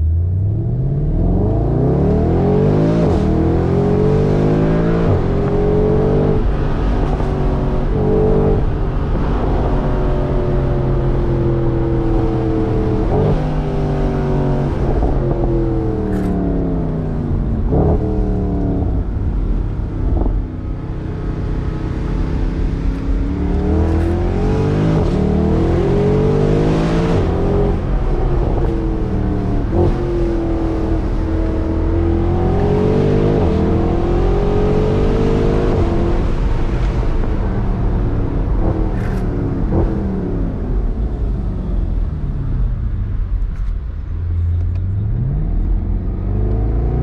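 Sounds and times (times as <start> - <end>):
car engine accelerating: 0.0 - 47.0
wind noise: 0.5 - 47.0
sharp cracks at gear changes: 16.1 - 16.4, 38.6 - 40.0.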